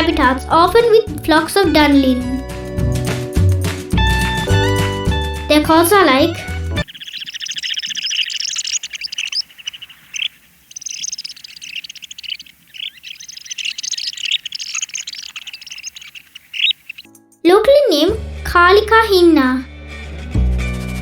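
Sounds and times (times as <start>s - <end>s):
sandpipers twittering: 6.8s - 17.1s.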